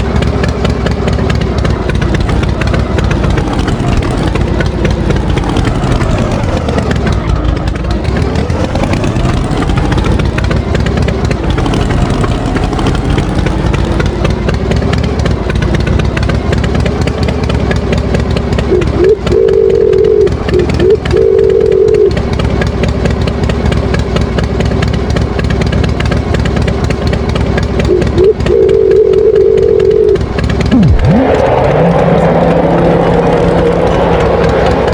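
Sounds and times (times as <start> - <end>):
tractor engine running: 0.0 - 34.9
steady high tone: 18.7 - 22.2, 27.9 - 34.9.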